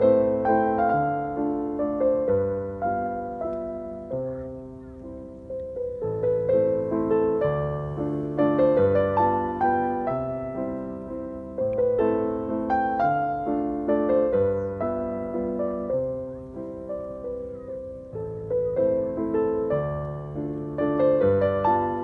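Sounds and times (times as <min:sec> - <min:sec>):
slow piano music: 0:00.0 - 0:22.0.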